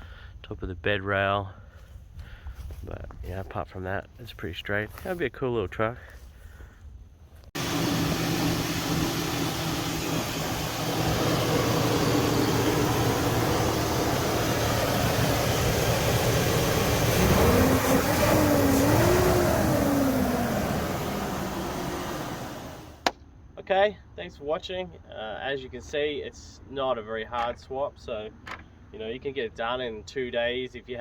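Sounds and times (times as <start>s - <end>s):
truck engine running: 7.6s - 23.0s.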